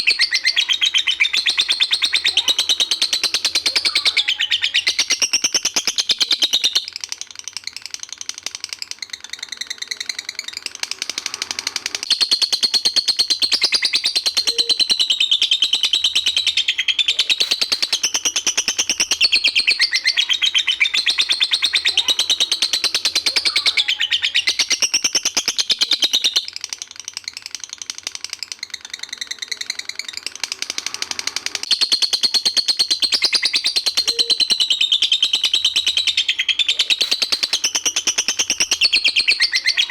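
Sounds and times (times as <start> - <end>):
songbird chattering song: 0.0 - 39.9.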